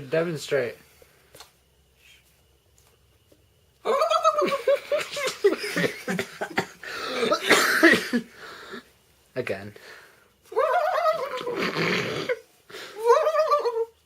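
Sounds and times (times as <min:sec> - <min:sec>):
man imitating turkey gobble: 0:10.6 - 0:11.6, 0:13.0 - 0:13.9.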